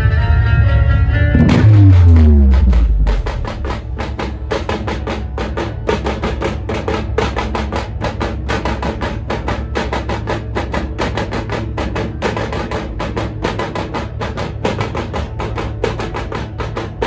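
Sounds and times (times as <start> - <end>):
steady low bass: 0.0 - 4.6
fast drumming: 1.4 - 17.0.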